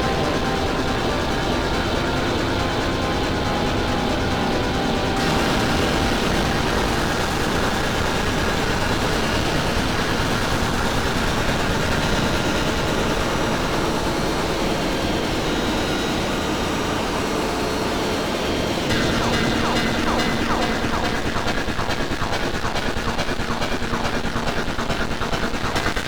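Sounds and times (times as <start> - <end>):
distorted layered music loops: 0.0 - 11.0, 18.9 - 26.0.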